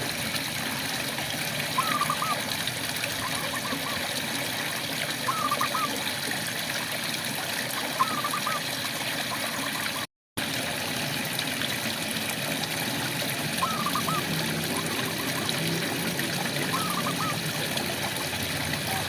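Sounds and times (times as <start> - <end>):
frogs calling: 1.7 - 2.5, 3.1 - 4.1, 5.3 - 6.0, 7.8 - 8.7, 13.6 - 15.8, 16.6 - 17.6.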